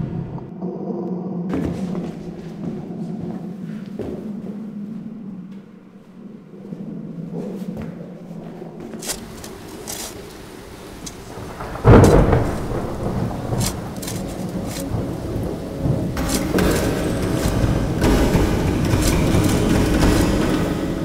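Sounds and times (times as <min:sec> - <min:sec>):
thunder clap and rumble: 0:06.3 - 0:21.0
steady rain: 0:09.0 - 0:21.0.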